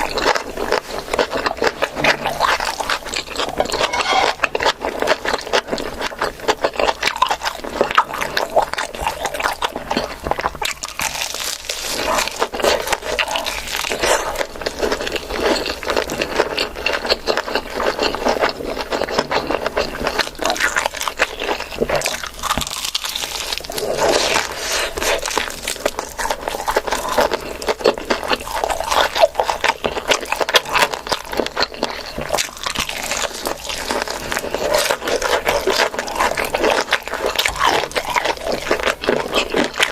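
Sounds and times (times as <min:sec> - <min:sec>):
chewing and crunching food: 0:00.0 - 0:39.9
scraping: 0:03.3 - 0:04.6.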